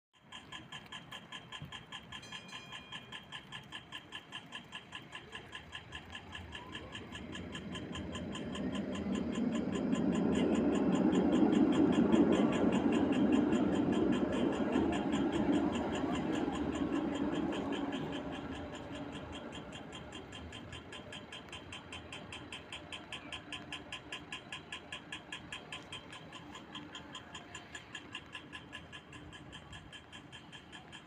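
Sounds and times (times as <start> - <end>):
crossing signal ticking: 0.2 - 31.0
vehicle rumble: 5.9 - 29.9.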